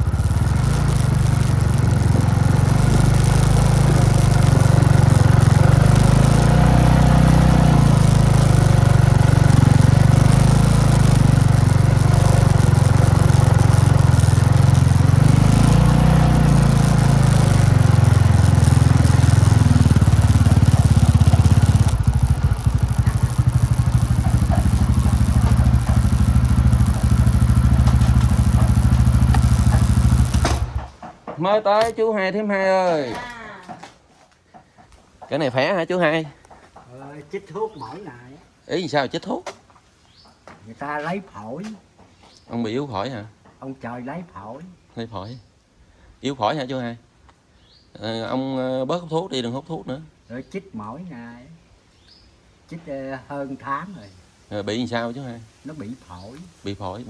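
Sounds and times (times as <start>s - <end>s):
motorbike engine running: 0.0s - 31.4s.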